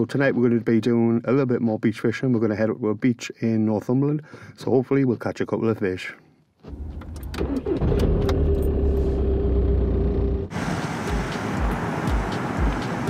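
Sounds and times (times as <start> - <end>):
car engine rumbling: 6.6 - 13.0.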